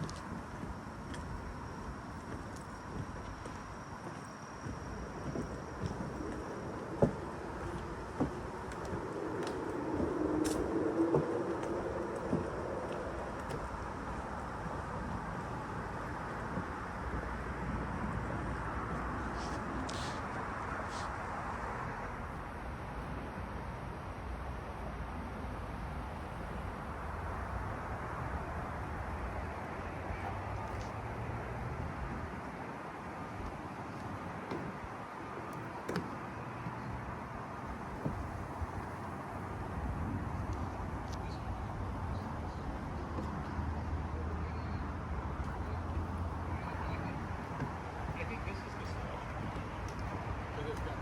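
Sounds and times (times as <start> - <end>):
distant motor vehicle droning: 0.0 - 22.4
outdoor background noise: 0.0 - 51.0.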